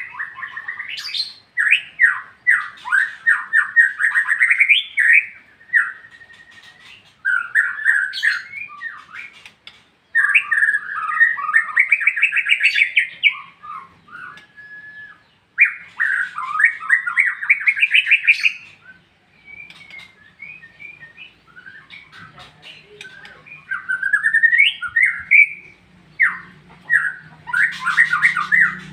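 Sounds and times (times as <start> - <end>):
high bird whistles: 0.0 - 28.9
bird singing trilled runs: 15.3 - 28.9.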